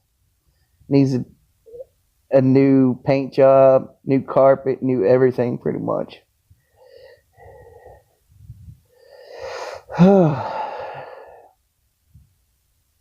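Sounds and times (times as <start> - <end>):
person gasping cry: 9.4 - 11.5.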